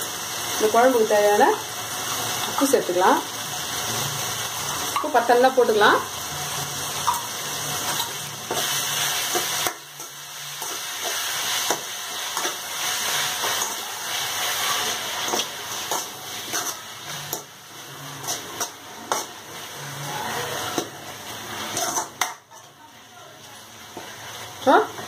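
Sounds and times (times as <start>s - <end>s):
vegetables sizzling in oil: 0.0s - 25.0s
metal ladle scraping pan: 7.0s - 22.7s.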